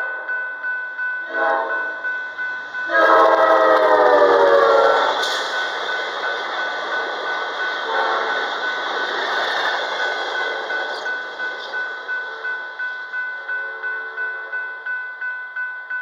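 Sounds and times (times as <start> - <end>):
passing train cars rushing: 0.0 - 15.3
bell ringing: 0.0 - 16.0
train horn blast: 2.8 - 5.6, 7.8 - 8.6.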